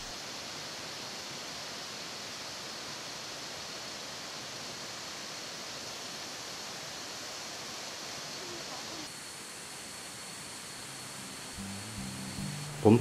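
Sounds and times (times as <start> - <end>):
thin high tone: 10.6 - 13.0
waterfall rushing: 10.6 - 13.0.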